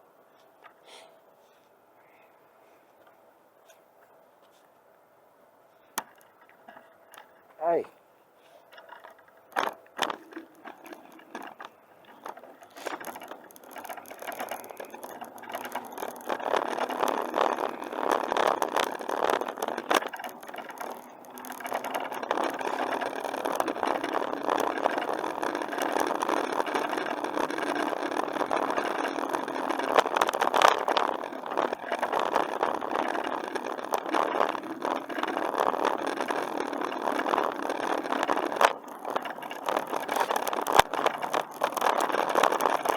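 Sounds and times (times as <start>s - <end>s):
bicycle clicks: 5.9s - 7.8s, 8.6s - 42.9s
bicycle rattling over trail: 6.1s - 42.9s.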